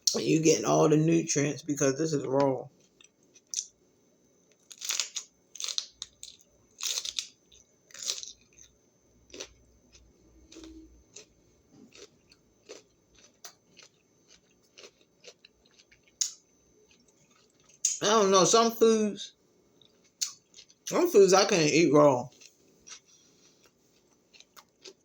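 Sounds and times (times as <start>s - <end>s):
crunching bites of vegetable: 4.6s - 18.0s, 22.3s - 25.0s
chewing clicks: 11.9s - 18.0s.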